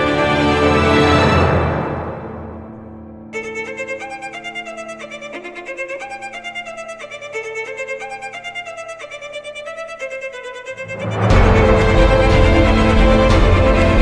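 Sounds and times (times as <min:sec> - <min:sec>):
violin playing quick run: 0:03.4 - 0:14.0
held low note: 0:10.8 - 0:14.0.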